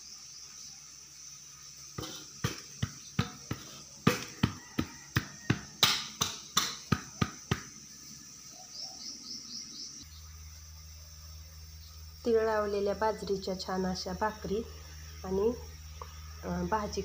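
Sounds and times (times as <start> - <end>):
sharp slaps or knocks: 2.0 - 7.7.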